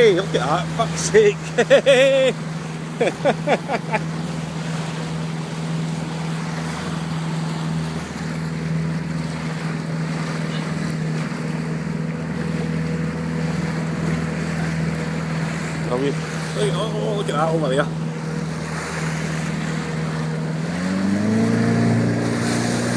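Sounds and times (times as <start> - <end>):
boat engine humming: 0.0 - 22.9
water noise: 0.0 - 22.9
wind: 0.0 - 22.9.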